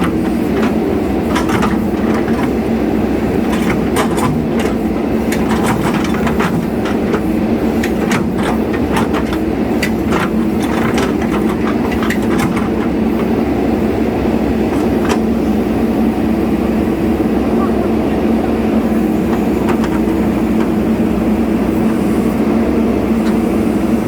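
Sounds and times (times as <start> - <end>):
metallic clanks and knocks: 0.0 - 13.4, 14.6 - 15.5
heavy diesel engine running: 0.0 - 24.0.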